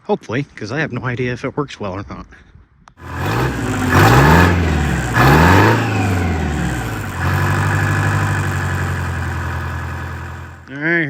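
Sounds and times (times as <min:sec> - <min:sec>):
garden tractor engine revving: 0:03.0 - 0:10.6.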